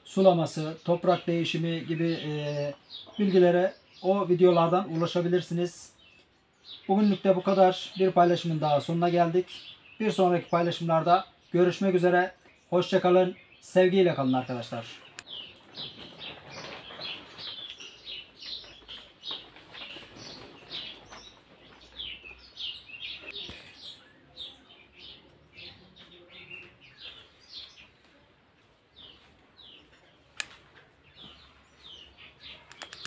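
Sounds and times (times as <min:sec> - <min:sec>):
small bird chirping: 0:14.3 - 0:28.2, 0:28.9 - 0:33.0
sharp click: 0:32.7 - 0:33.0.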